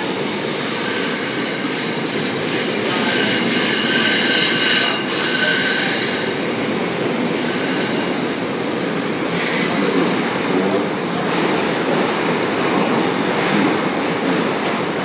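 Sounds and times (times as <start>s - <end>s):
train wheels on rails: 0.0s - 15.0s
high-pitched wheel squeal: 0.6s - 10.0s.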